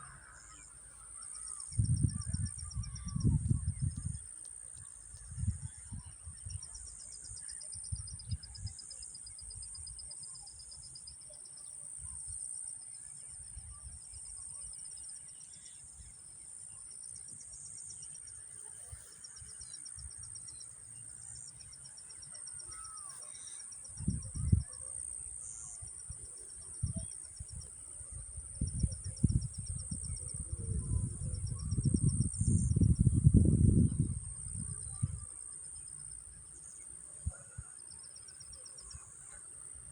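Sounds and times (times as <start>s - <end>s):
insects trilling: 18.1s - 39.9s.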